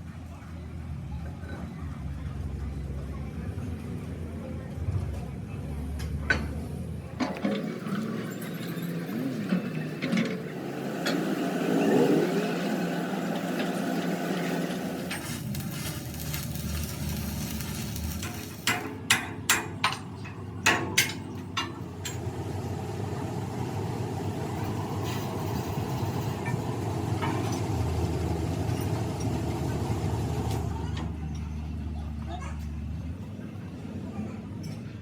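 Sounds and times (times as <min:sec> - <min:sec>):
engine running steadily: 0:00.0 - 0:35.0
hammer striking metal: 0:18.3 - 0:22.2.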